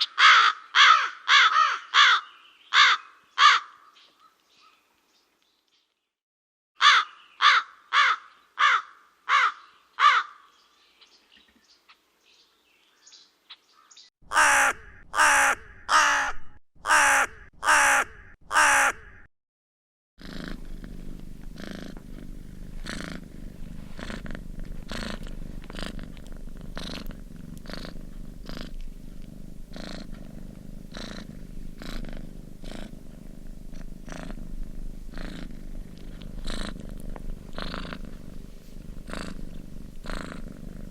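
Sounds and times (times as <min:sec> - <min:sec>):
crows cawing: 0:00.0 - 0:03.9, 0:06.8 - 0:10.5, 0:14.3 - 0:19.3
cat purring: 0:20.2 - 0:40.9.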